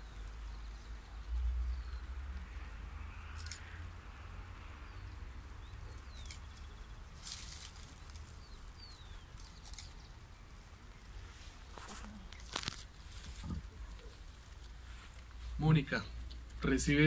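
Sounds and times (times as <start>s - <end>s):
short rustle: 11.2s - 15.6s.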